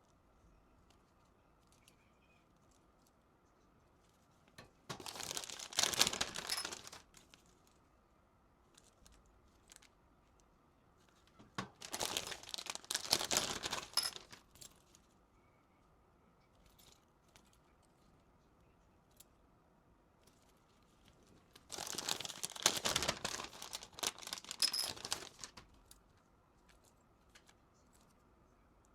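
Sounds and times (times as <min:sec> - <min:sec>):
plastic packaging crinkling: 0:04.9 - 0:07.8, 0:08.7 - 0:10.0, 0:11.2 - 0:15.1, 0:20.3 - 0:25.9.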